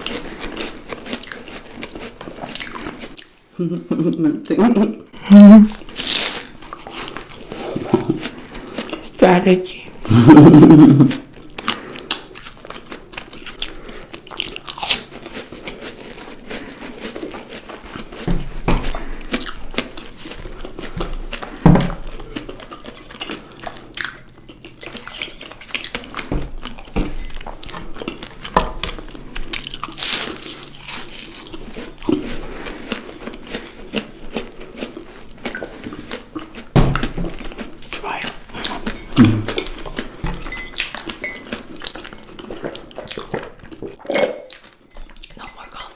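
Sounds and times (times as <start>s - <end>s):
person crunching and chewing: 0.0s - 3.4s, 5.2s - 45.9s.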